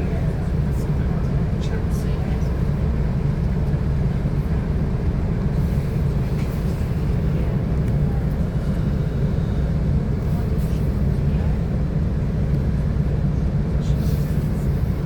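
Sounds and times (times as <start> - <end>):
train carriage low rumble: 0.0 - 15.0.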